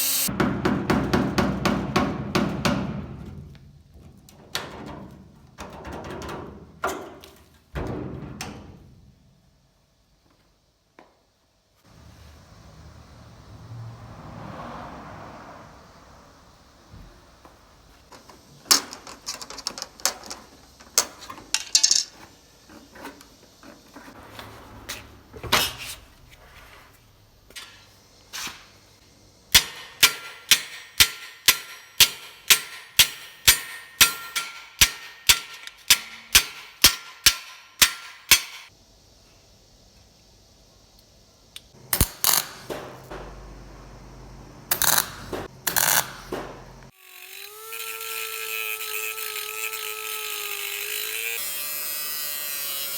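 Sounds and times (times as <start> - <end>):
hammer striking sheet metal: 29.5 - 38.7.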